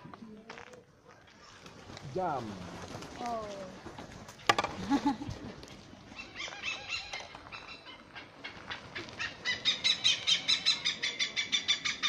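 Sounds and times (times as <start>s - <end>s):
hornbill calling: 6.2s - 12.0s.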